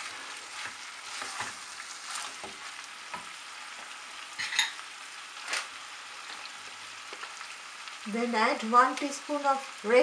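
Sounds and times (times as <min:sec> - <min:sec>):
meat sizzling in oil: 0:00.0 - 0:10.0
wooden spatula scraping pan: 0:00.1 - 0:02.7.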